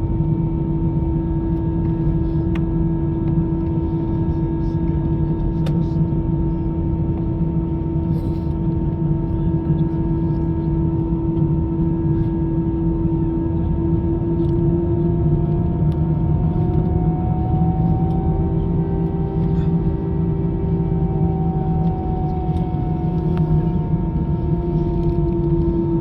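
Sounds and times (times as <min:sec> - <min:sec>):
jet engines running: 0:11.2 - 0:26.0.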